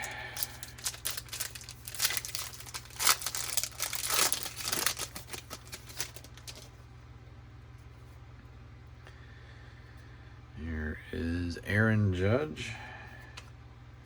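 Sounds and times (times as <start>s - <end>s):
wrapper tearing and crinkling: 0.4s - 6.7s.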